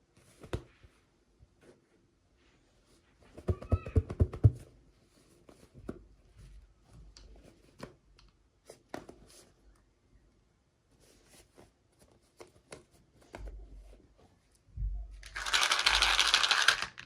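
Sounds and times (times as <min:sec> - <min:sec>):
packaging rustling: 0:15.2 - 0:17.0
plastic toy pieces clicking: 0:15.3 - 0:17.0.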